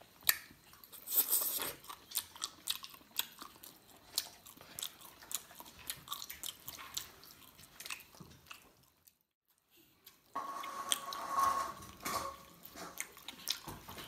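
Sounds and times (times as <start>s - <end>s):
wet chewing and mouth smacking: 0.0s - 9.2s, 12.4s - 14.0s.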